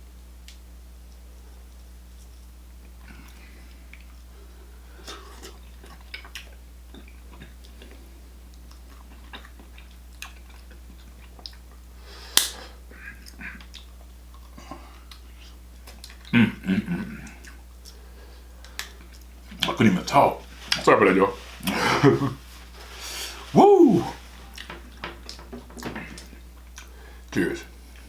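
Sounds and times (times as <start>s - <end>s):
person chewing: 4.9s - 19.8s, 20.4s - 28.0s
sharp snap: 12.3s - 12.7s
wet mouth smacks: 12.4s - 14.5s.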